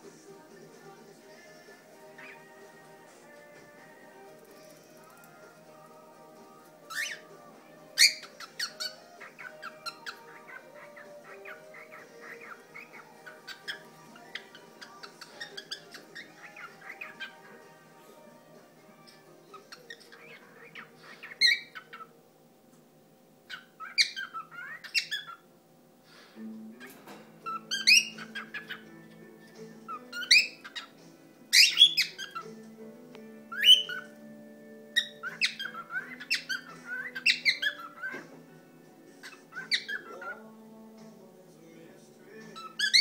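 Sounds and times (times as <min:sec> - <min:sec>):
music playing: 0:00.0 - 0:22.8, 0:25.4 - 0:43.0
cockatiel chirping and whistling: 0:06.9 - 0:07.3, 0:08.0 - 0:17.5, 0:19.5 - 0:22.1, 0:23.5 - 0:25.4, 0:27.5 - 0:28.9, 0:29.9 - 0:32.5, 0:33.5 - 0:34.2, 0:34.9 - 0:38.2, 0:39.2 - 0:40.3, 0:42.6 - 0:43.0.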